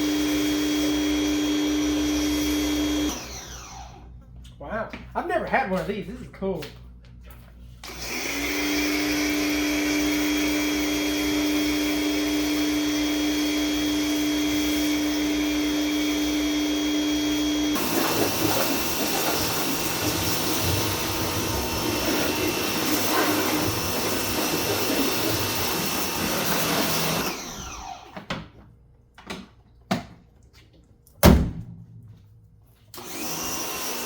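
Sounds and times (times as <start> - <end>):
pressure washer motor and pump: 0.0 - 4.1, 7.8 - 28.6, 32.9 - 34.0
rough uneven machine noise: 17.8 - 27.4.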